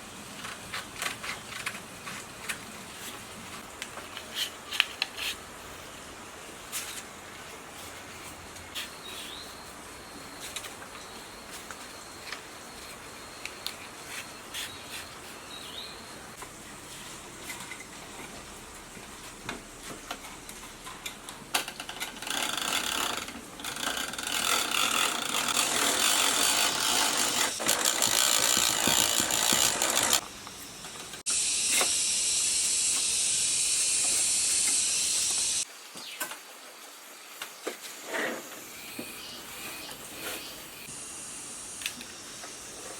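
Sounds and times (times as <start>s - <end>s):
steady high hiss: 30.2s - 42.9s.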